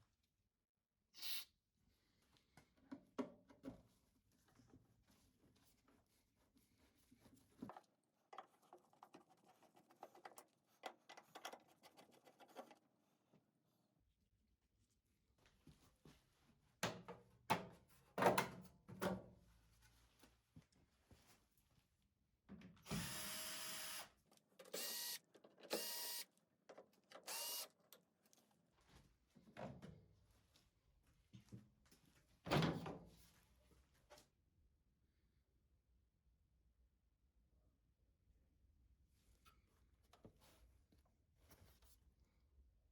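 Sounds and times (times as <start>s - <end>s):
faint clicks and taps of tools: 7.6s - 12.8s
cordless screwdriver motor: 22.9s - 24.1s, 24.8s - 26.2s, 27.3s - 27.7s.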